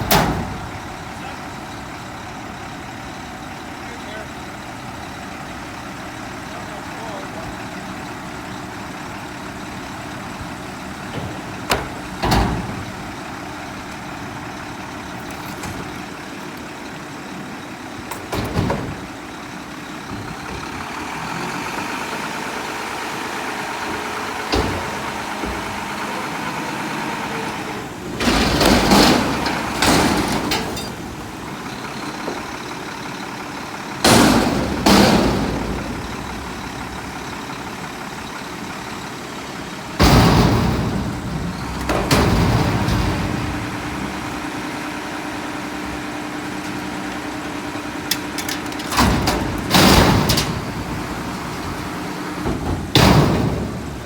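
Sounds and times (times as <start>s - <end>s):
loud metal bangs and clatters: 0.0s - 3.6s, 7.0s - 16.8s, 17.9s - 54.0s
diesel engine running: 0.0s - 54.0s.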